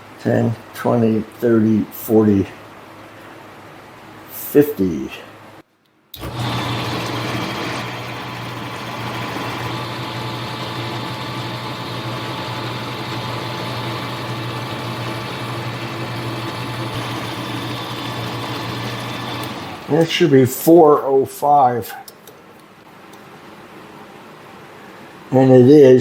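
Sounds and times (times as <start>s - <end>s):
metal lathe motor humming: 6.2s - 20.0s.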